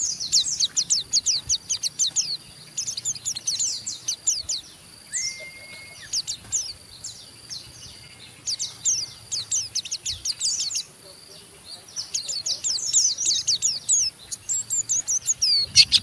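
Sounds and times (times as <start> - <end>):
bird twittering high chirps: 0.0 - 16.0
bird whistle-like tone: 5.1 - 6.3.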